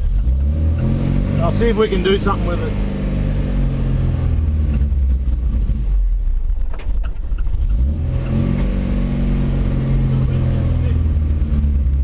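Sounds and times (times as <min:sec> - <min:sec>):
pickup engine running: 0:00.0 - 0:12.0.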